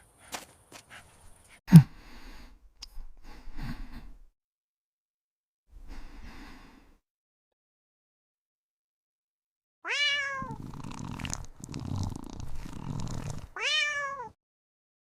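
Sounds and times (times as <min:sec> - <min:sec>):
person sighing heavily: 0:01.7 - 0:02.5.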